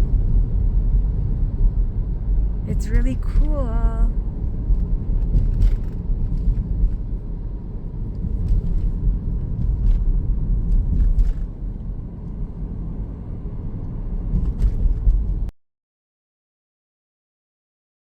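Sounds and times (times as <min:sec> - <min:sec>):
car cabin road rumble: 0:00.0 - 0:15.5.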